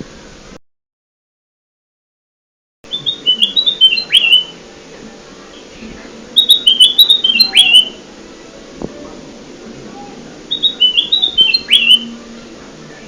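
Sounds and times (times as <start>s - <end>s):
bulbul whistled song: 2.9s - 4.6s, 5.5s - 8.0s, 10.0s - 13.0s.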